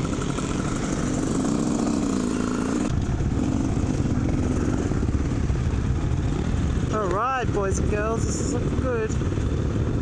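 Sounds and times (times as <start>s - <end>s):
dirt bike engines running: 0.0s - 10.0s
heavy low rumble: 2.9s - 10.0s.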